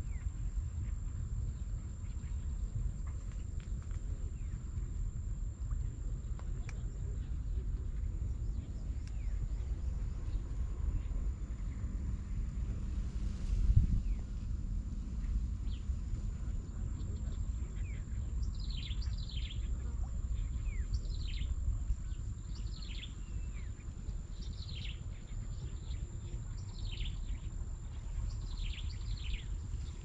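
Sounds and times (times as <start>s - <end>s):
low rumble: 0.0s - 30.0s.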